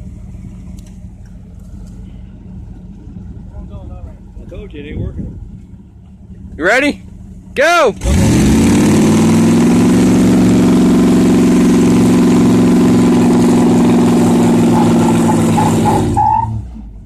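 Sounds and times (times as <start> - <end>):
engine revving under load: 7.9 - 17.0.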